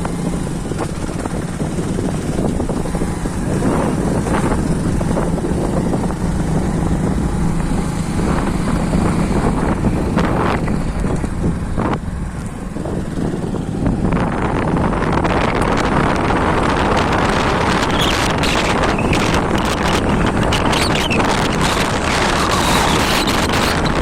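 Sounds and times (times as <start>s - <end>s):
vehicle engine running: 0.0s - 24.0s
wind blowing on microphone: 0.0s - 24.0s.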